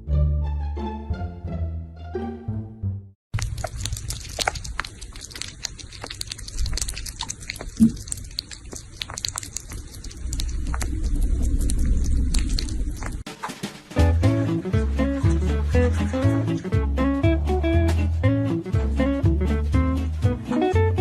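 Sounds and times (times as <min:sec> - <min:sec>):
crunchy chewing: 0:03.3 - 0:13.6, 0:14.6 - 0:16.8
low rumble: 0:09.4 - 0:13.2.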